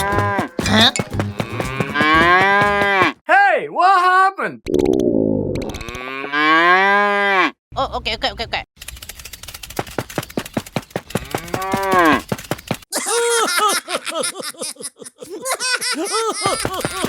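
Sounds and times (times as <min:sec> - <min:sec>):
cow mooing: 0:01.2 - 0:03.1
fast clicks: 0:08.8 - 0:12.8.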